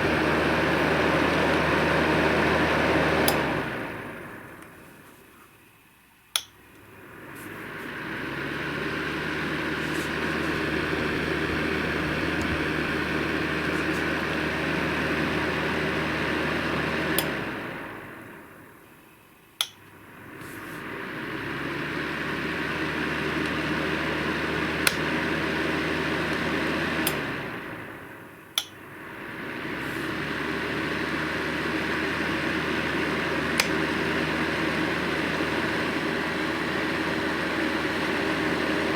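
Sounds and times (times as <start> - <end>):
electric fan heater blowing: 0.0 - 38.9
heater switch click: 3.1 - 3.6, 6.3 - 6.9, 17.0 - 17.5, 19.6 - 20.0, 24.8 - 25.2, 26.3 - 27.4, 28.5 - 28.8, 33.5 - 34.0.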